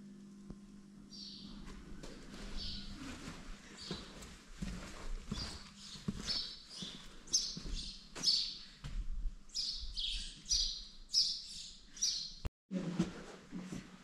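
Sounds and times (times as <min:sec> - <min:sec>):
small birds chirping: 0:01.1 - 0:01.6, 0:02.6 - 0:03.0, 0:03.8 - 0:04.2, 0:05.3 - 0:08.8, 0:09.5 - 0:12.5.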